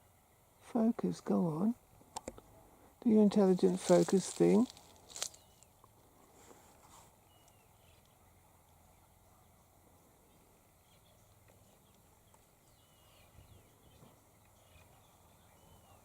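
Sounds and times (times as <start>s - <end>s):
faint bird chirps and whistles: 7.2s - 9.5s, 12.6s - 16.0s.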